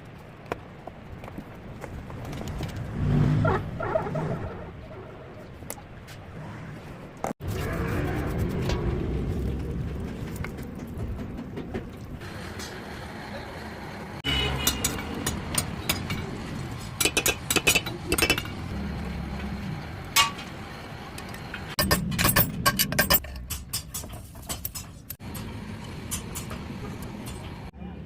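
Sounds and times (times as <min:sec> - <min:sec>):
metal tools clinking: 0:21.2 - 0:27.6.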